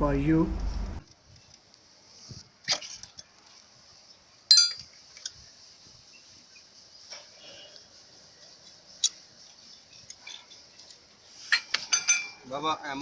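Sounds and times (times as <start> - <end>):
faint steady high hiss: 0.0 - 13.0
metal tools clinking: 11.5 - 12.4.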